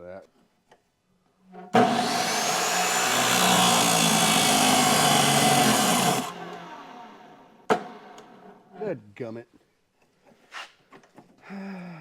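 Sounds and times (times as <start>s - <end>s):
electric chop saw cutting wood: 1.8s - 7.9s.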